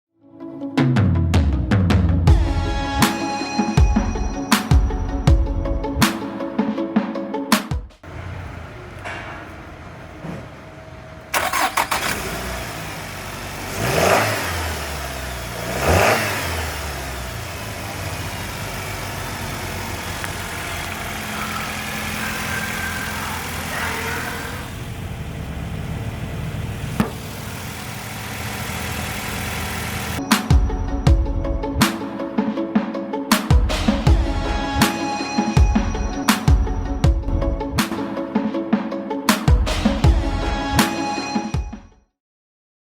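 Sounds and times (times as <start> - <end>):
car engine starting and revving: 8.0 - 30.2.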